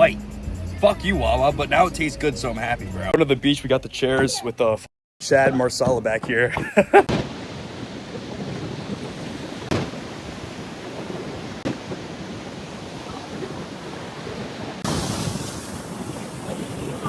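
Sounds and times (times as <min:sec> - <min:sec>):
wind buffeting microphone: 0:07.1 - 0:17.0.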